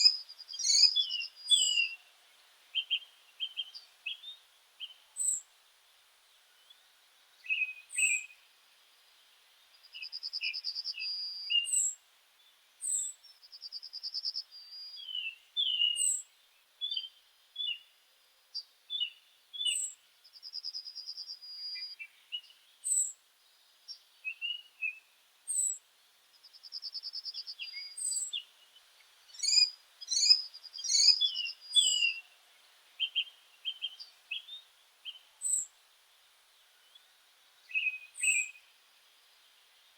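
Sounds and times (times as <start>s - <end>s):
sharp bird calls: 0.0s - 2.0s, 29.3s - 32.3s, 37.7s - 38.7s
buzzy bird trill: 29.3s - 32.2s.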